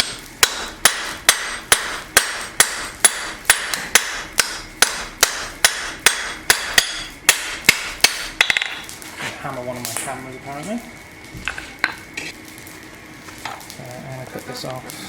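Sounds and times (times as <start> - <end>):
hammer striking steel on anvil: 0.0 - 8.8.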